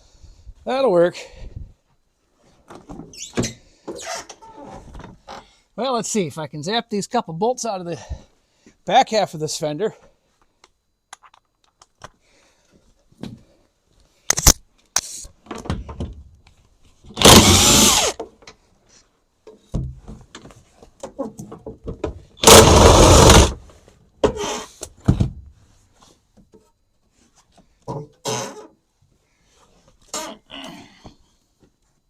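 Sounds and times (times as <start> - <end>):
impact wrench bursts: 17.2 - 18.2, 22.4 - 23.6.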